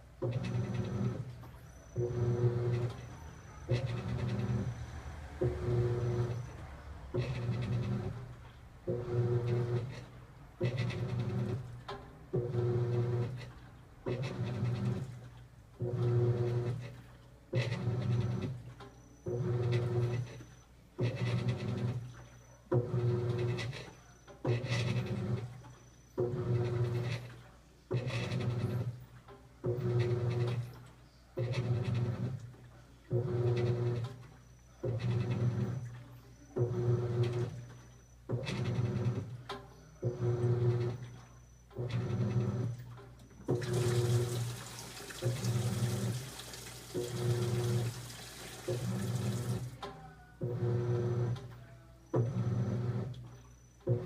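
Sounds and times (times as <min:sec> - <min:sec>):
washing machine motor humming: 0:00.0 - 0:54.0
water and clothes swishing: 0:43.5 - 0:49.8.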